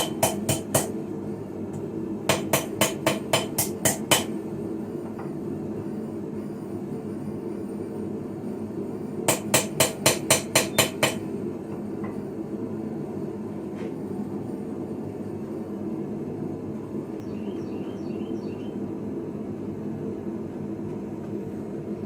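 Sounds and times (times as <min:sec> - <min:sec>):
hammer striking iron on anvil: 0:00.0 - 0:00.9, 0:02.3 - 0:04.4, 0:09.3 - 0:11.2
steady low hum: 0:00.0 - 0:22.0.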